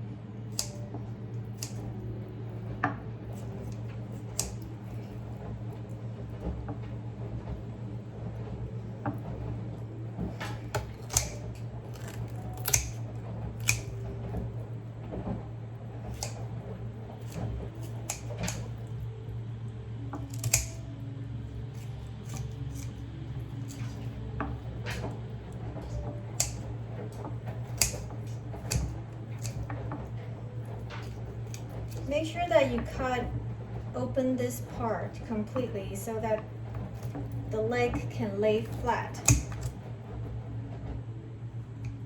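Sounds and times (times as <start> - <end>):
steady low hum: 0.0 - 42.0
scissors snipping raw chicken: 0.5 - 0.8, 1.5 - 1.9, 3.3 - 5.1, 10.6 - 13.0, 13.6 - 14.1, 16.1 - 16.5, 17.2 - 19.0, 20.2 - 20.8, 21.7 - 24.1, 26.4 - 26.7, 27.6 - 29.7, 30.9 - 32.1, 39.2 - 39.8.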